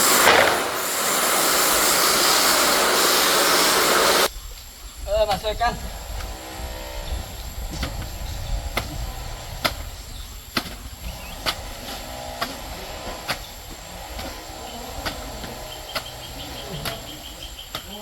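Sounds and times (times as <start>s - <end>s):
faint voices: 14.0s - 18.0s.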